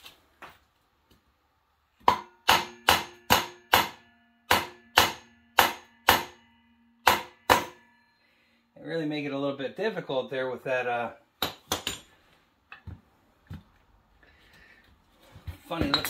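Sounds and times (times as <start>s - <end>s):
hammer striking metal: 2.0s - 8.2s.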